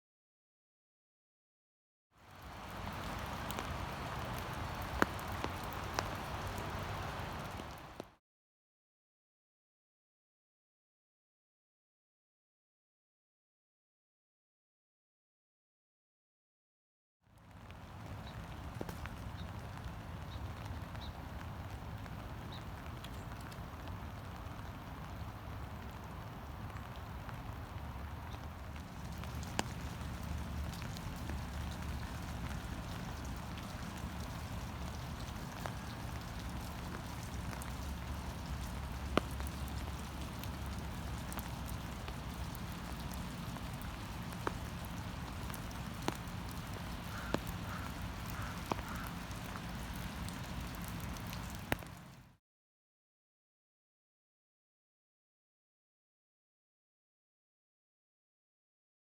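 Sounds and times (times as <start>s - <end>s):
heavy rain falling: 2.3s - 8.1s, 17.5s - 52.2s.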